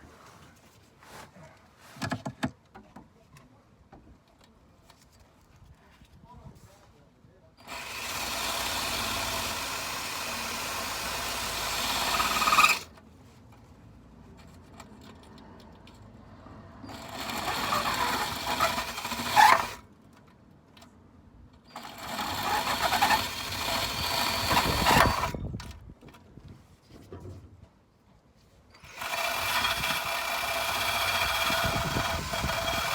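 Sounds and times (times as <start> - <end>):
electric power tool running: 7.6 - 12.9, 16.8 - 19.8, 21.7 - 25.4, 28.8 - 32.9.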